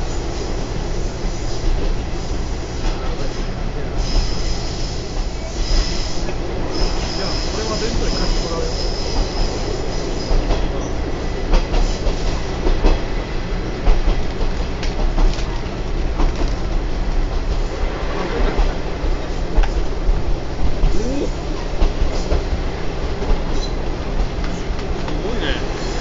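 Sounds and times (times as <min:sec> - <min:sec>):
train rumbling on track: 0:00.0 - 0:26.0
high wheel squeal: 0:04.0 - 0:11.0.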